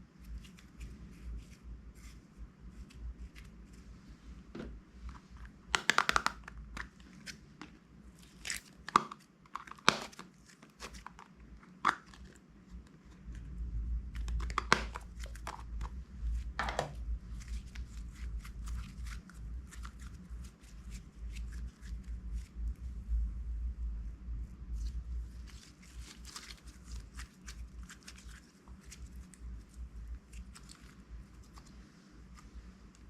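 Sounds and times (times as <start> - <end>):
crunchy slime crackling: 8.1 - 12.5, 24.8 - 33.0
packaging crinkling: 25.4 - 29.3.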